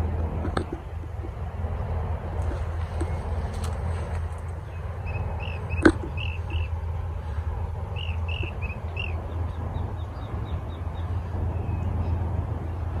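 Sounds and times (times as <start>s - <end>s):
low rumble: 0.0s - 13.0s
faint ticking bird calls: 4.5s - 6.8s, 8.0s - 11.1s
small bird chirping: 4.6s - 6.7s, 8.0s - 11.9s.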